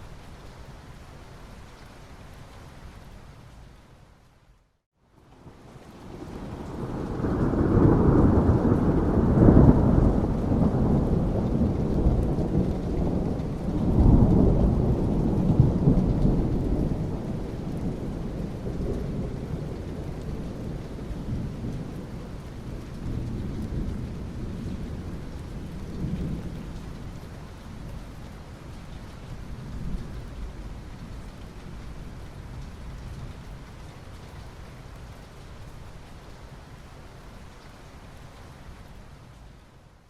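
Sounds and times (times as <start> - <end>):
thunder rumbling: 6.0 - 27.2.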